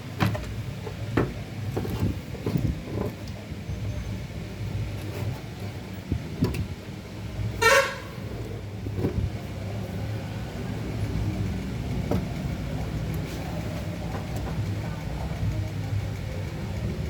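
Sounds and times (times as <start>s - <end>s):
vehicle horn toot: 7.6s - 8.3s.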